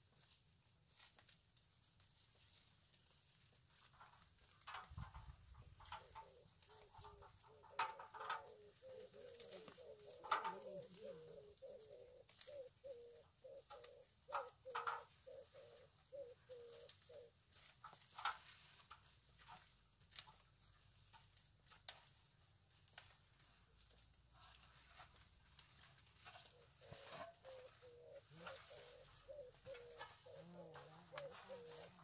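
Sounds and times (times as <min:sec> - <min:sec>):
bird calling repeated notes: 0:06.2 - 0:17.3.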